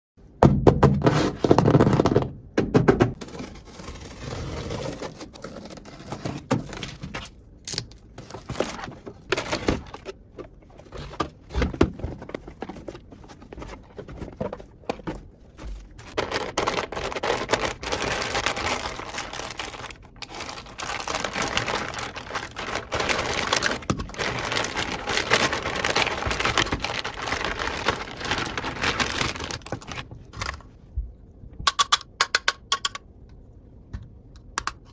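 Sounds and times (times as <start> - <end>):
plastic packaging crinkling: 15.8 - 30.7.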